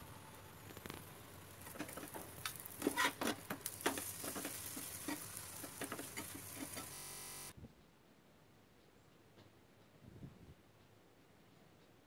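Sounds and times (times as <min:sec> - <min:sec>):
flatbread sizzling in oil: 0:00.0 - 0:07.5
metal spatula scraping a pan: 0:02.8 - 0:06.9.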